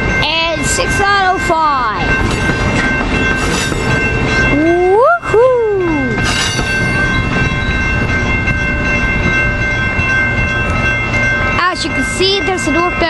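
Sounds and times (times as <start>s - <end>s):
steady high tones: 0.0s - 13.0s
train rumbling: 0.0s - 13.0s
pitched whoop: 4.6s - 6.2s.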